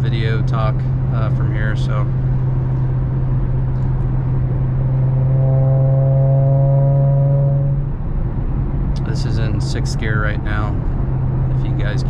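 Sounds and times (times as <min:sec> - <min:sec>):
car exhaust drone in cabin: 0:00.0 - 0:12.0
higher hum: 0:00.7 - 0:09.1.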